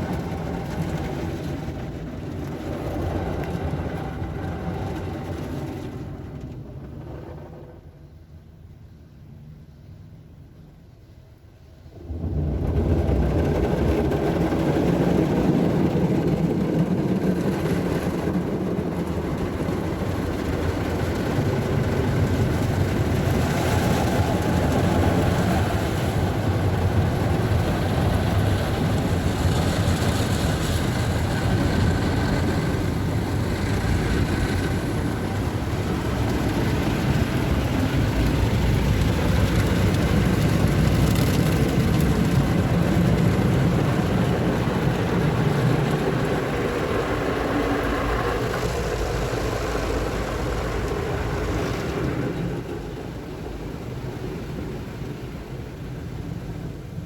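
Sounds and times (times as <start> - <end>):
car wash machinery rushing: 0.0 - 8.2, 11.7 - 57.0.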